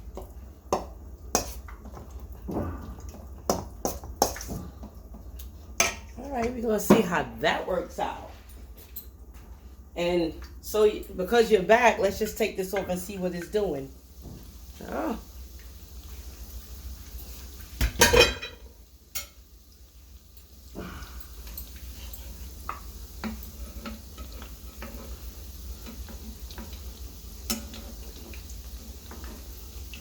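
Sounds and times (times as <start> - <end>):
food sizzling in a pan: 0.0 - 6.2, 11.2 - 30.0
utensil tapping and scraping pan: 0.2 - 2.2, 3.0 - 5.0, 22.6 - 29.5.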